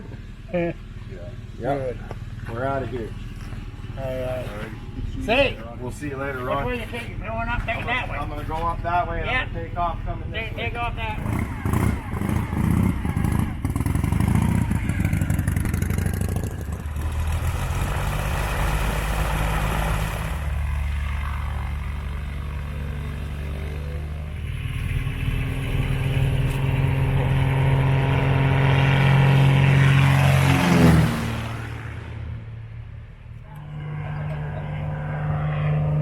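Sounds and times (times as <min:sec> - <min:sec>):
motorcycle engine running: 0:09.8 - 0:36.0.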